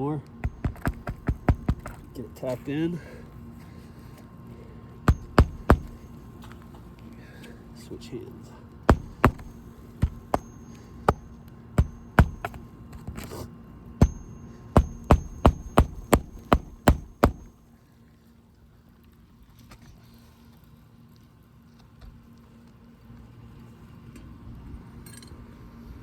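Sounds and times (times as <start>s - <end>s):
hammer striking nail: 0.4s - 2.0s, 5.1s - 6.1s, 8.9s - 12.6s, 14.0s - 17.5s.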